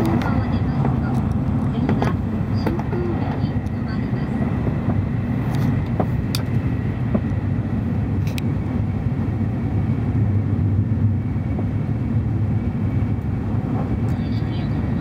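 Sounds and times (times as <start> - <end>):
train cabin low rumble: 0.0 - 15.0.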